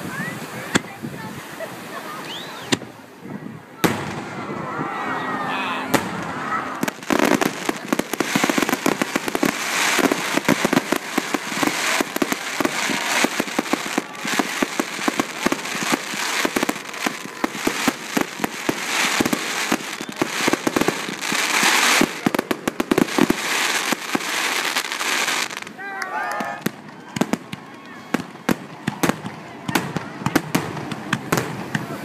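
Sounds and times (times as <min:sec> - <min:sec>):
hissing crackle: 0:05.9 - 0:25.8.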